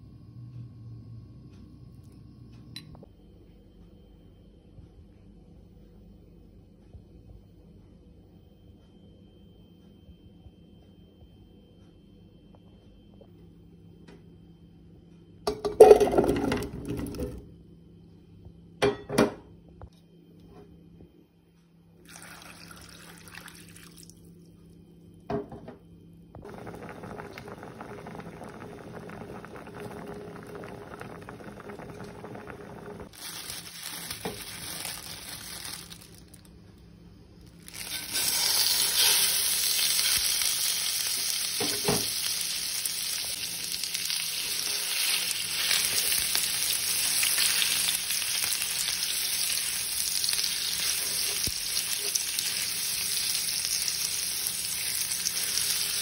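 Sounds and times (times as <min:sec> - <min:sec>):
water pouring into a pot: 0:22.0 - 0:24.2, 0:26.4 - 0:36.3, 0:37.7 - 0:56.0
meat sizzling in a pan: 0:26.5 - 0:36.2, 0:37.6 - 0:56.0.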